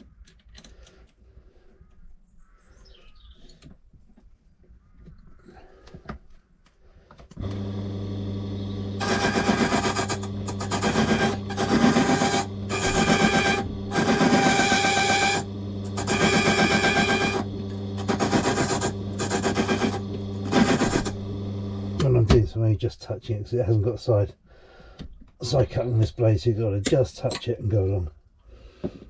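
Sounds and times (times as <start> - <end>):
machine motor humming: 7.4 - 22.5
cutter grinding metal key: 9.0 - 21.3.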